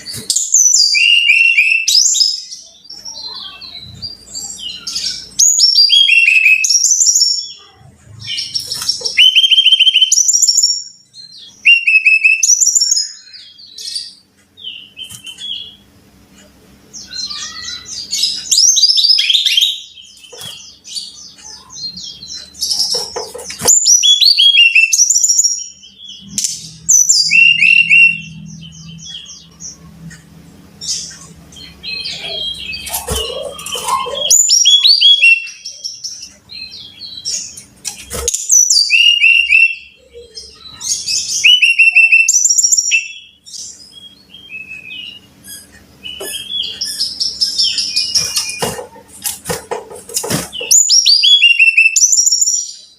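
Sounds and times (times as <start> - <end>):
bird whistled song: 0.0 - 3.6, 4.4 - 7.6, 8.4 - 14.1, 23.7 - 29.3, 30.9 - 35.6, 38.4 - 48.7, 50.6 - 52.9.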